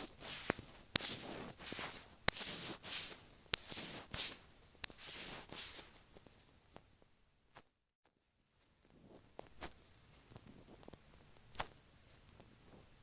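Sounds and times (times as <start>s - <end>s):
gloved fingers rubbing microphone: 0.0s - 6.5s.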